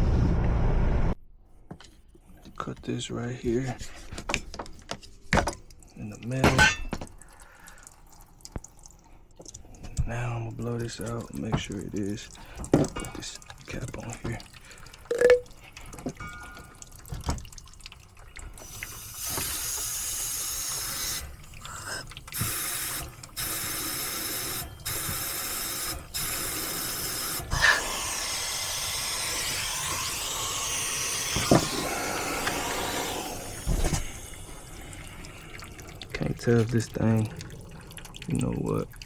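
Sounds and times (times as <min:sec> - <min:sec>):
compressed gas hissing through pipe: 0:18.6 - 0:37.2.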